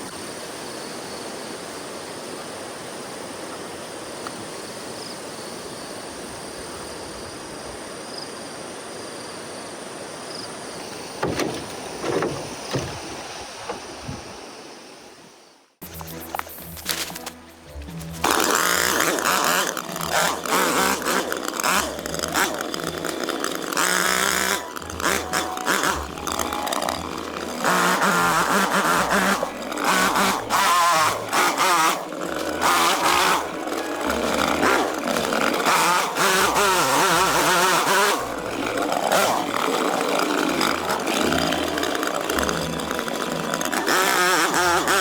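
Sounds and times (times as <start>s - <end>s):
chainsaw revving: 10.8s - 14.4s, 15.9s - 45.0s.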